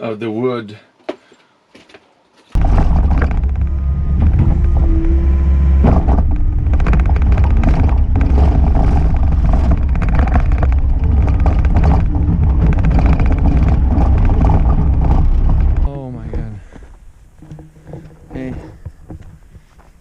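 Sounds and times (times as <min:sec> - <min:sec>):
heavy engine running: 0:02.6 - 0:15.9.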